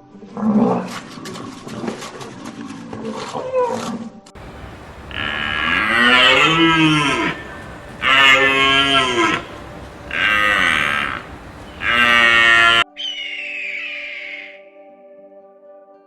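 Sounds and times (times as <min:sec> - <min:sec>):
cow mooing: 0:04.4 - 0:12.8.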